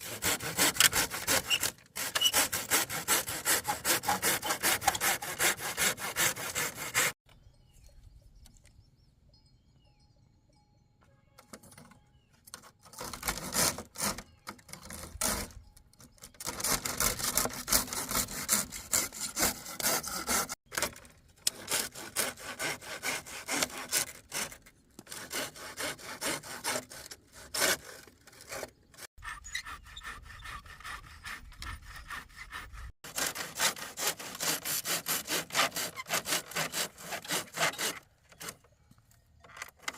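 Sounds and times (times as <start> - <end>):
saw cutting wood: 0.0 - 7.2, 12.6 - 15.6, 16.3 - 38.6.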